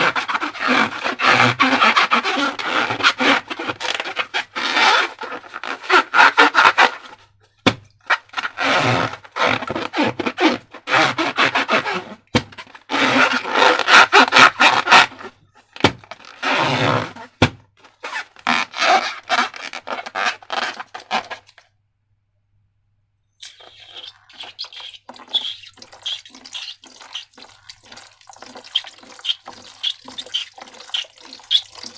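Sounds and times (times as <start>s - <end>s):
slime squelching: 23.4s - 31.9s.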